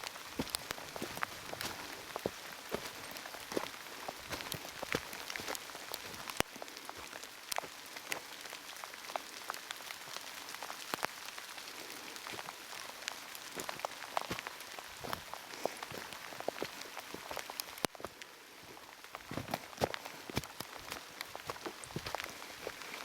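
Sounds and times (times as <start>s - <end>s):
heavy rain falling: 0.0s - 17.9s.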